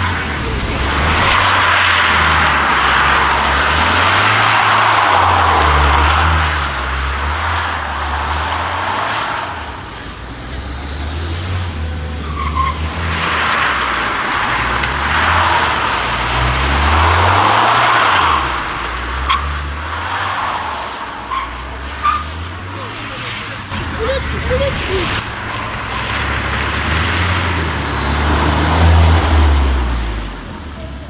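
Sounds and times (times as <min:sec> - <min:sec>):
cars revving and accelerating: 0:00.0 - 0:31.0.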